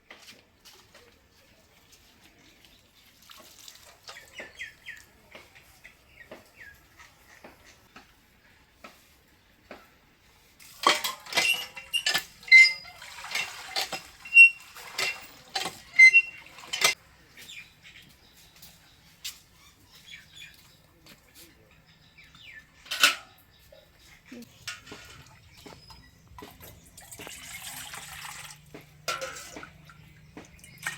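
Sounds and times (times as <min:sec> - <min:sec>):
metal pots and utensils clattering: 0:10.6 - 0:17.2, 0:21.7 - 0:30.9.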